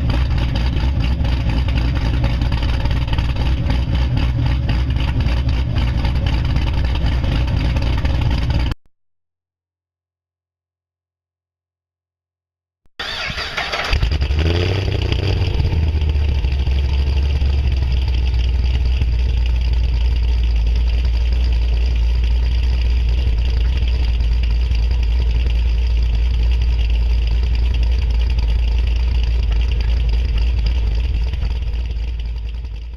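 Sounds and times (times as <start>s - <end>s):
engine revving and idling: 0.0s - 8.8s, 13.0s - 32.9s
starter cranking: 13.0s - 32.9s.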